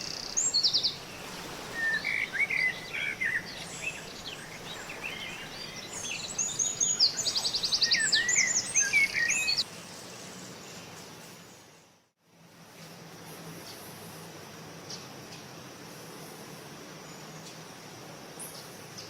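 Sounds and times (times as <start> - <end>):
bird trill: 0.0 - 9.6
small birds chirping: 0.0 - 11.0
steady background hiss: 0.0 - 19.0.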